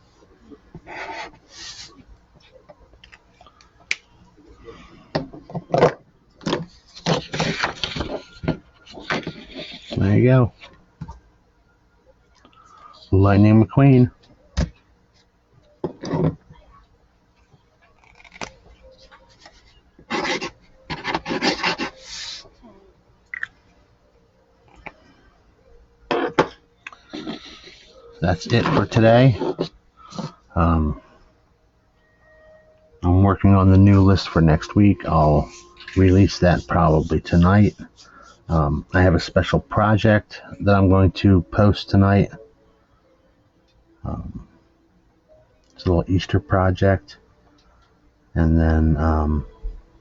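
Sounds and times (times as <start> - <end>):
marker scratching on paper: 8.9 - 10.0, 20.1 - 22.4, 35.1 - 38.1
drawing strokes rasping on paper: 33.9 - 38.4.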